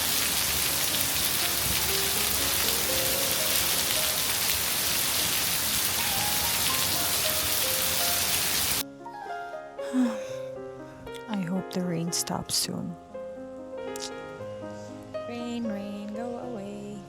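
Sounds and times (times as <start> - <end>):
heavy rain pouring: 0.0 - 8.8
quiet background music: 8.8 - 17.0.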